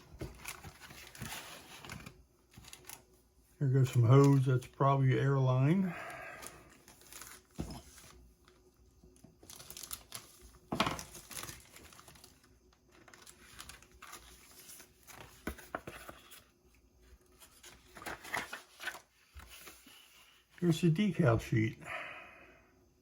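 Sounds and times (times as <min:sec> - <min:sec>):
plastic packaging crinkling: 0:00.2 - 0:03.1, 0:06.4 - 0:08.2, 0:09.4 - 0:15.8.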